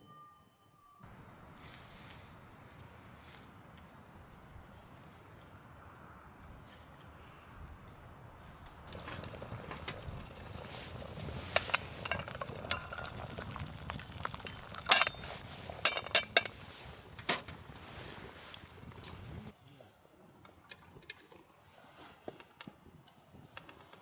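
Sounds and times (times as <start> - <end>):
metal cookware clinking: 8.9 - 17.6.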